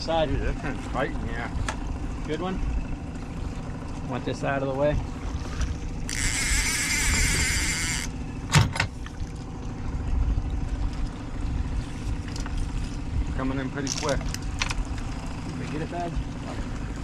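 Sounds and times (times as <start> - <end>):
boat motor running: 0.0 - 17.0
fishing reel whirring: 5.5 - 8.4.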